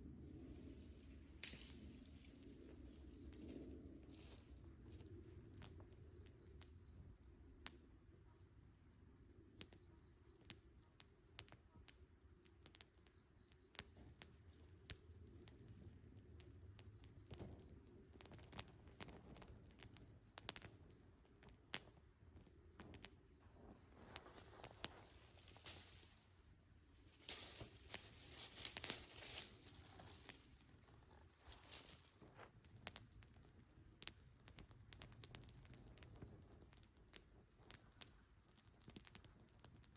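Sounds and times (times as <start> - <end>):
campfire crackling and popping: 0.0 - 39.9
faint insect trill: 0.0 - 39.9
rustling and crinkling: 23.4 - 32.6.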